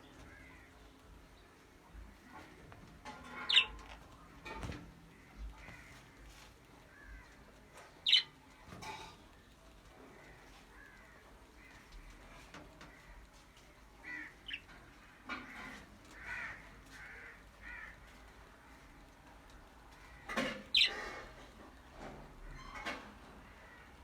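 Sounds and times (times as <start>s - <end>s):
budgerigars chirping softly: 3.4s - 3.8s, 8.0s - 8.3s, 20.7s - 21.1s.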